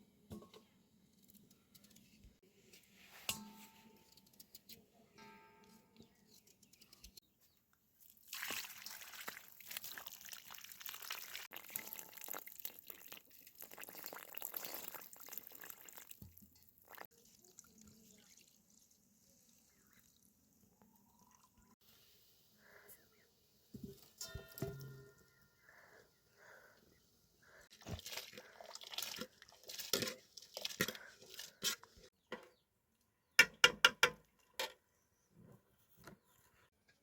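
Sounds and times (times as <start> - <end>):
liquid splashing and dripping: 8.1 - 18.6, 27.7 - 31.4.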